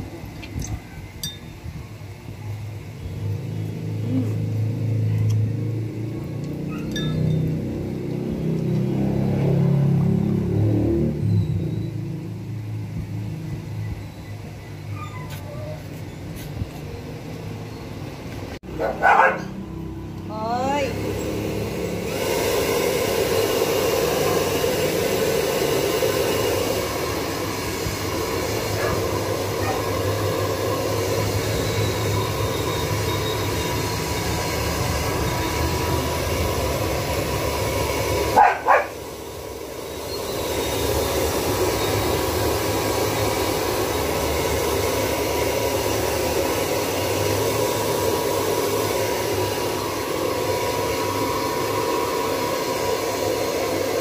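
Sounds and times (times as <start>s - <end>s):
puppy yelping: 6.7s - 7.1s, 14.9s - 15.9s, 18.8s - 19.6s, 29.6s - 29.8s
hair dryer blowing: 20.1s - 54.0s.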